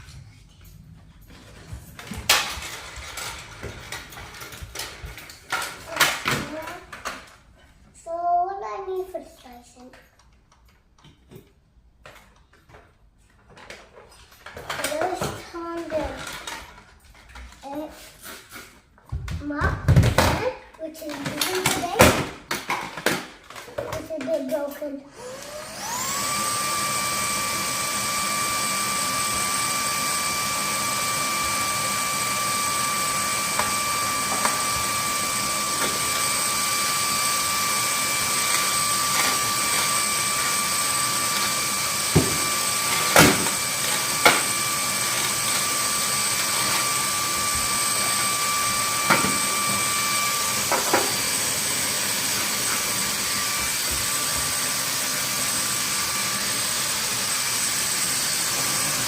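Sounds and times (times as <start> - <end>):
appliance motor whining: 24.7 - 59.0.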